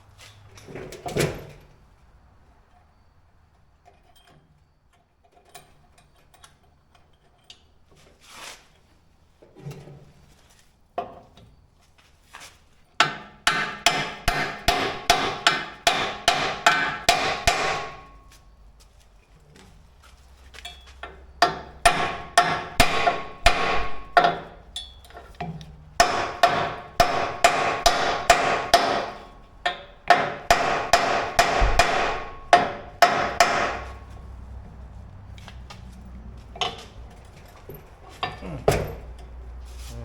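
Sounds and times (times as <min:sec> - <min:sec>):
hammer ringing on steel: 0:13.5 - 0:18.2, 0:21.4 - 0:24.4, 0:26.0 - 0:34.0
knocks: 0:25.4 - 0:34.1.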